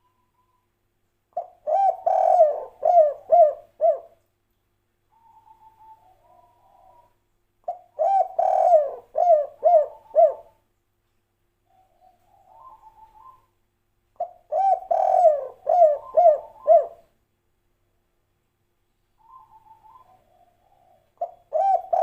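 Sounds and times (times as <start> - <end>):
faint higher bird call: 0.0 - 0.8, 11.7 - 13.6, 19.1 - 22.0
dove cooing: 1.4 - 4.2, 5.1 - 10.6, 11.7 - 13.5, 14.2 - 17.1, 19.2 - 22.0.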